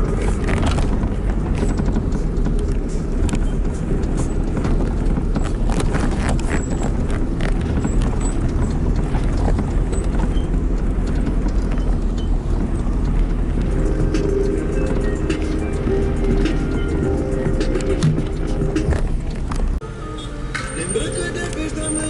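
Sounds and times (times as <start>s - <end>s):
small knocks and rattles: 0.0s - 17.3s
vehicle engine and road rumble: 0.0s - 22.0s.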